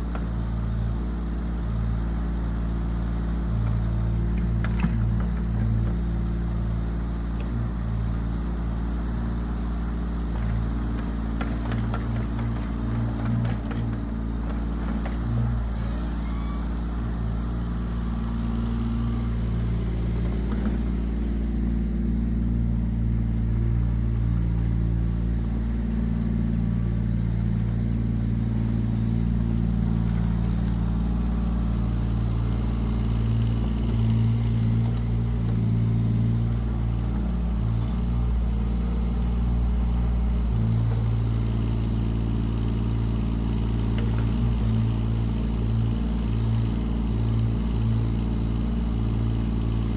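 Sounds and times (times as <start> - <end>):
diesel engine running under load: 0.0 - 49.9.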